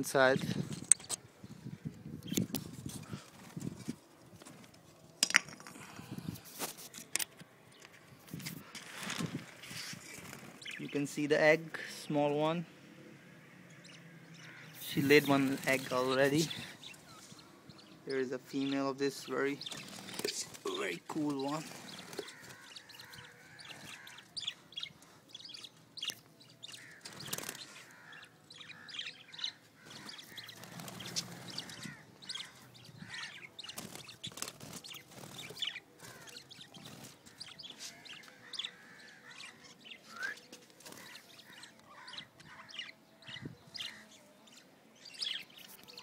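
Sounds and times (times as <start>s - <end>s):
parrots chirping: 21.5s - 40.2s.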